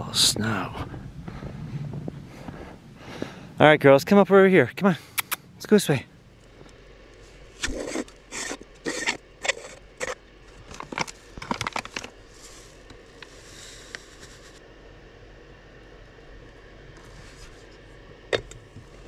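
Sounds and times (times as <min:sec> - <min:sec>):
footsteps crunching in snow: 0:00.8 - 0:03.5.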